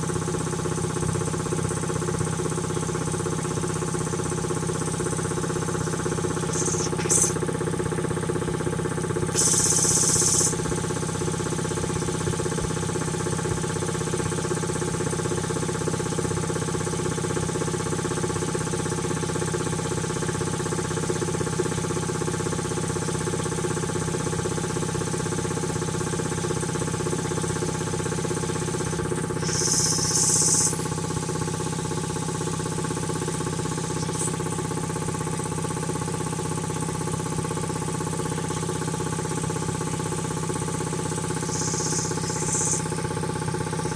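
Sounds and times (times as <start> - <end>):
air compressor pump running: 0.0 - 43.9
high hiss bursts: 6.4 - 7.4, 9.3 - 10.6, 29.4 - 31.8, 41.3 - 43.0.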